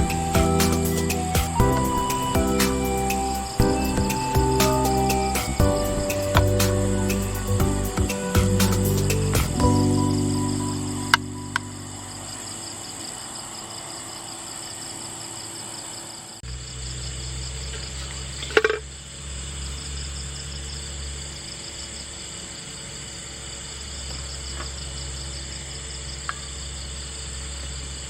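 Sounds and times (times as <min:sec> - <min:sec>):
low steady hum: 0:00.0 - 0:13.1
insects chirring: 0:00.0 - 0:28.0.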